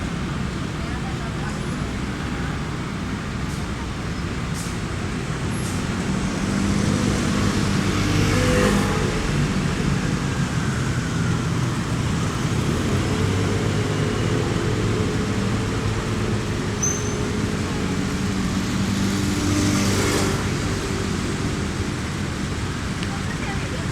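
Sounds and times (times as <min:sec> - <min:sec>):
fire truck engine humming: 0:00.0 - 0:23.9
street traffic: 0:00.0 - 0:23.9.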